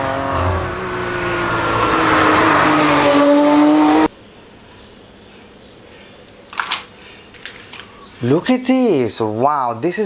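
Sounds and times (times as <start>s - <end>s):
racing car engine revving: 0.0s - 4.1s.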